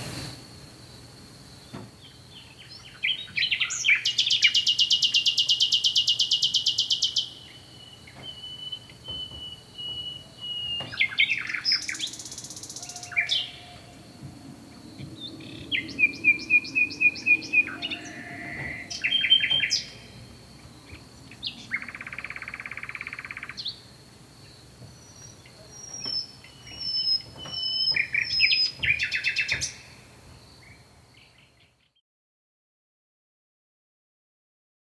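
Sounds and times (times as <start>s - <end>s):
faint high-pitched whine: 0.0s - 31.8s
birds chirping and trilling: 1.6s - 32.0s
buzzy rattling bird call: 8.8s - 14.7s.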